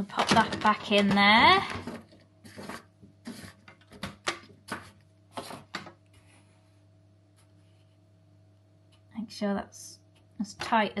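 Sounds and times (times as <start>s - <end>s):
plastic filter scraping and clicking: 0.1s - 6.0s.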